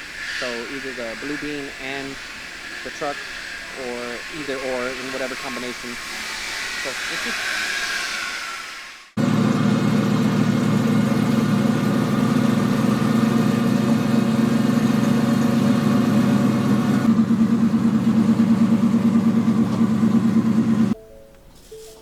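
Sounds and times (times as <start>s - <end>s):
engine idling: 9.2s - 21.0s.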